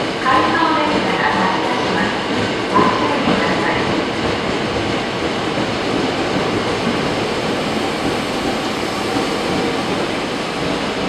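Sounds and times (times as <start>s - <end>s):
train wheels rolling on track: 0.0s - 11.0s.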